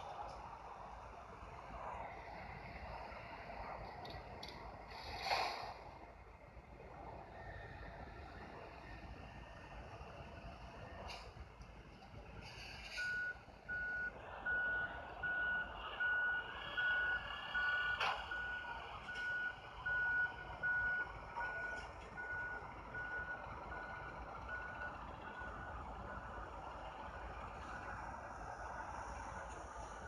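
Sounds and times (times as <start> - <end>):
truck back-up alarm beeping: 12.4 - 30.0.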